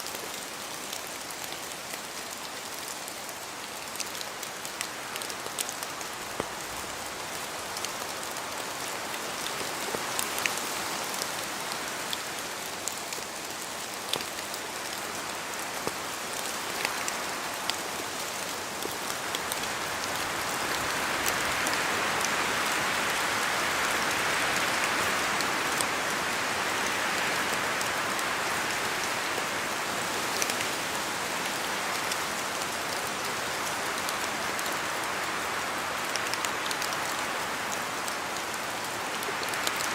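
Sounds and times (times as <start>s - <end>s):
rain falling in a forest: 0.0s - 39.9s.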